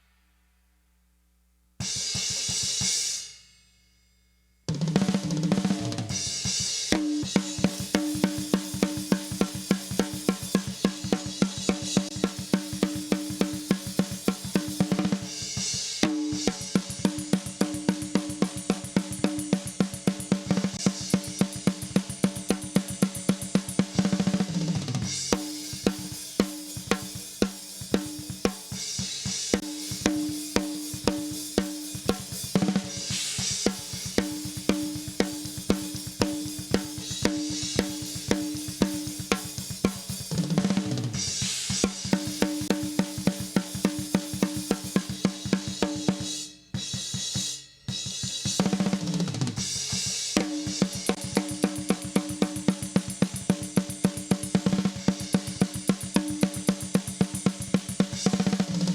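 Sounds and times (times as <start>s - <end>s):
metal drum kit beat: 4.8s - 58.9s
drum fill: 4.9s - 47.1s.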